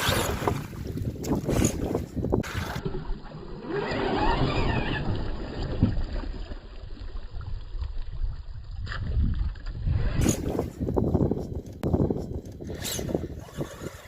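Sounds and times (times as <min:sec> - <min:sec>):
wind on microphone: 0:00.0 - 0:03.0, 0:03.7 - 0:14.0
electric motor whining: 0:12.1 - 0:14.0.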